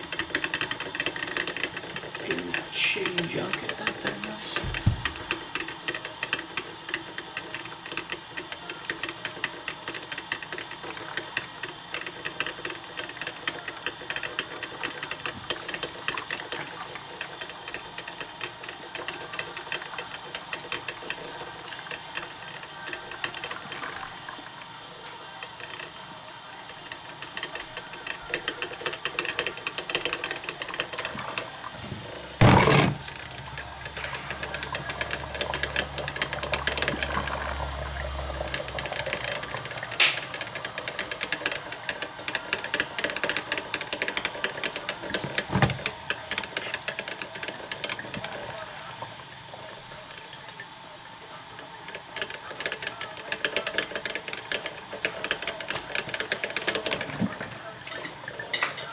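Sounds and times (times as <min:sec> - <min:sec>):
coffee maker sputtering and popping: 0:00.0 - 0:58.9.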